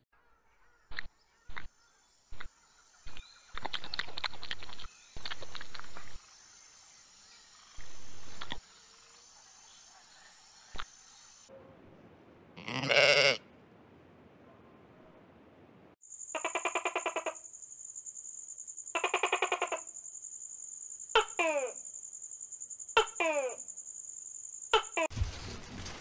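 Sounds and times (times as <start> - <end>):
sheep bleating: 12.6 - 13.4.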